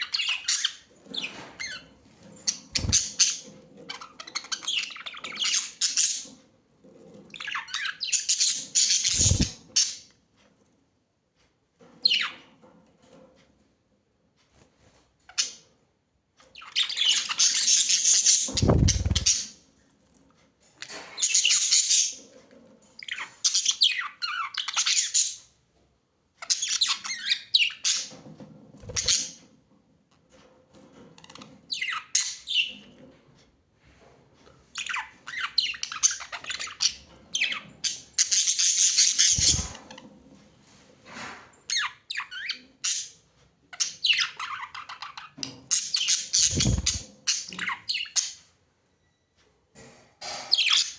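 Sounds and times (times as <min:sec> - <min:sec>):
birds squawking and chattering: 0:00.0 - 0:06.4, 0:07.1 - 0:10.1, 0:16.6 - 0:19.6, 0:28.8 - 0:29.4, 0:34.8 - 0:40.1, 0:43.8 - 0:48.4.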